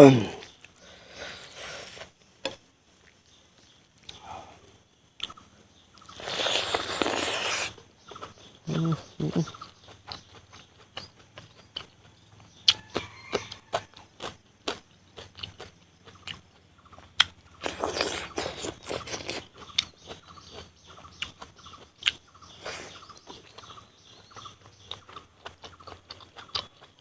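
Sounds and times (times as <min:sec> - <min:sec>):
crunching and chewing: 0:00.4 - 0:04.5, 0:05.2 - 0:27.0
mouth clicks and bites: 0:06.0 - 0:12.1, 0:17.0 - 0:26.9.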